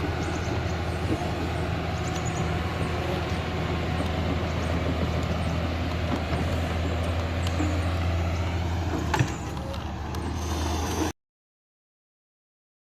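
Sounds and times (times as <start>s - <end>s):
excavator diesel engine running: 0.0s - 11.2s.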